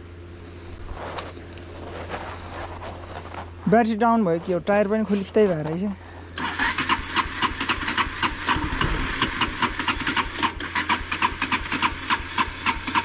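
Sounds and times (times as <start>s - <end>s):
motorcycle starter cranking: 6.3s - 13.0s.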